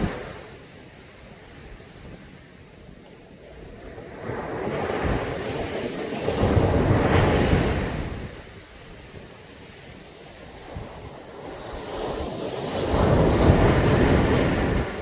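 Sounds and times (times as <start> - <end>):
wave breaking and washing in: 0.0 - 1.6, 10.0 - 15.0.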